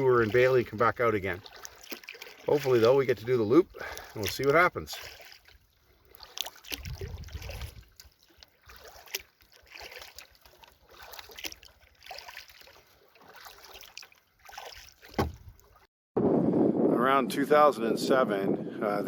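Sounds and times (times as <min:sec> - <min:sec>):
paddle knocking: 0:00.0 - 0:03.2, 0:03.8 - 0:15.8
kayak paddle splashing water: 0:00.0 - 0:15.9.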